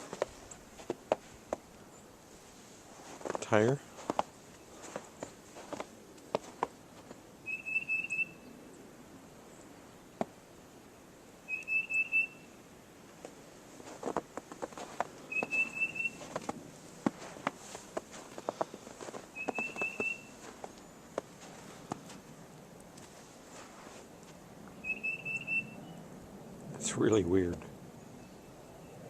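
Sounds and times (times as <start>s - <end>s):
light crunches and clicks: 3.0s - 7.2s, 13.2s - 15.6s, 16.2s - 24.4s
songbird trilling: 7.4s - 8.6s, 11.4s - 12.6s, 15.2s - 16.3s, 19.3s - 21.0s, 24.7s - 26.1s.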